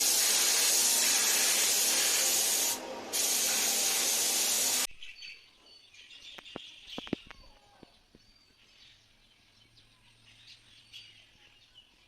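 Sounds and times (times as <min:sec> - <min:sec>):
pressurised spray hissing: 0:00.0 - 0:04.9.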